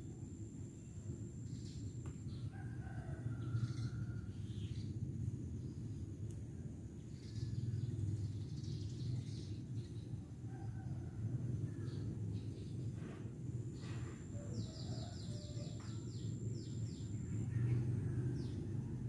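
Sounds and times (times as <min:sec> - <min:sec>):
steady low rumble: 0:00.0 - 0:19.0
rooster crowing: 0:02.5 - 0:04.4, 0:14.3 - 0:16.2.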